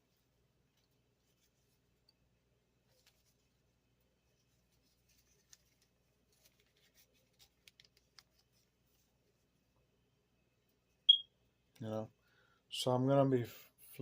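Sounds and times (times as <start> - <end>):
paper crinkles and ticks: 4.5 - 8.7.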